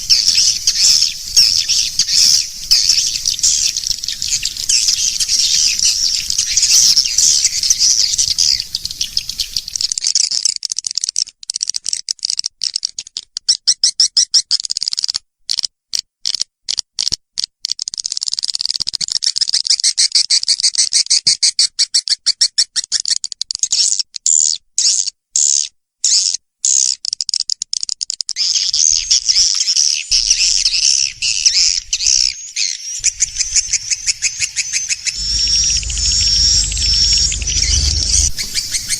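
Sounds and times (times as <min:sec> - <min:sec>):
high-pitched bird twittering: 0:00.0 - 0:10.0, 0:28.4 - 0:38.9
rapid bird clicking: 0:09.6 - 0:19.9.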